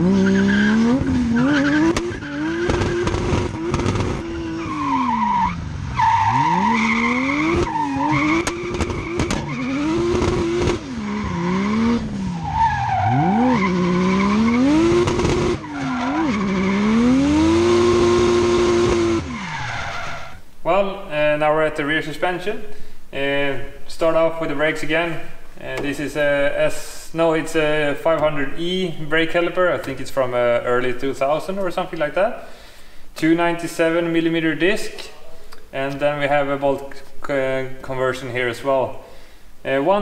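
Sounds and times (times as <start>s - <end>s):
car engine revving hard: 0.0s - 4.6s, 5.2s - 20.3s
tyres screeching: 0.0s - 17.2s, 19.0s - 20.5s.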